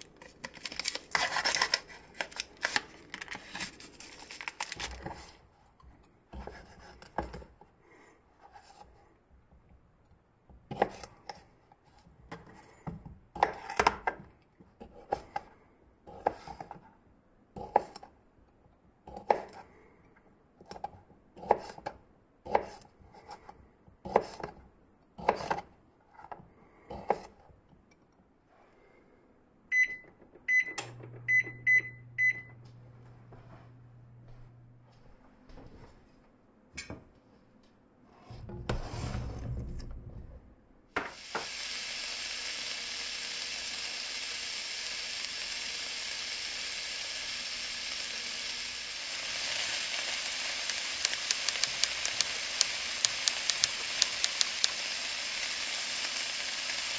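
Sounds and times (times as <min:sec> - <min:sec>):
low steady hum: 0:29.0 - 0:40.9.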